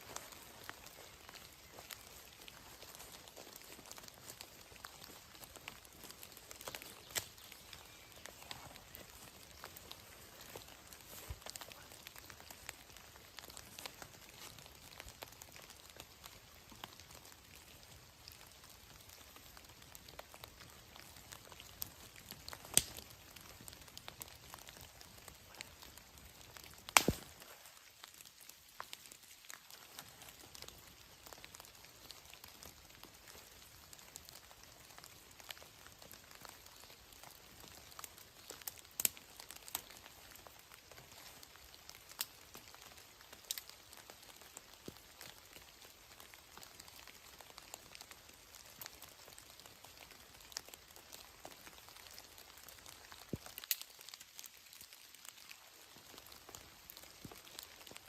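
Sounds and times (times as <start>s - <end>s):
light rain pattering: 0.0s - 58.0s.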